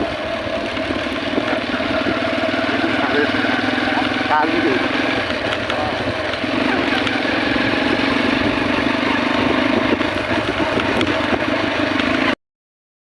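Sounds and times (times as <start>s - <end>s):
small motorcycle engine running: 0.0s - 12.4s.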